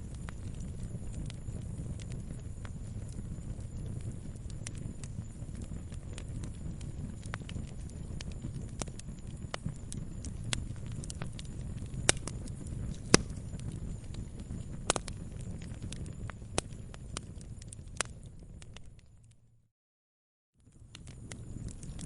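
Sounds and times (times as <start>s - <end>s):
campfire rumble: 0.0s - 19.5s, 20.6s - 22.0s
fire crackling and popping: 0.0s - 19.5s, 20.6s - 22.0s.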